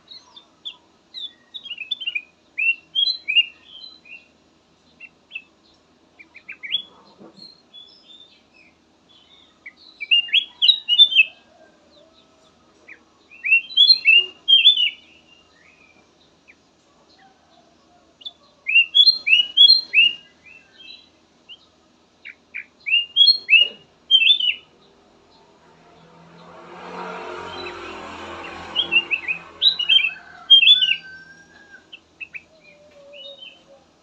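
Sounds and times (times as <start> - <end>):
bird whistling song: 0.1 - 4.3, 6.3 - 11.5, 12.9 - 16.0, 18.2 - 21.6, 22.2 - 24.7, 28.7 - 33.8.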